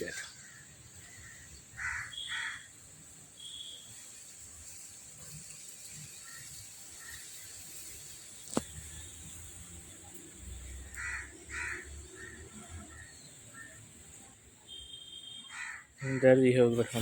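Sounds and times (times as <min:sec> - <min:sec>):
steady high hiss: 0:00.0 - 0:17.0
crow cawing: 0:00.1 - 0:02.8, 0:06.2 - 0:07.5, 0:10.9 - 0:13.9, 0:14.7 - 0:16.4.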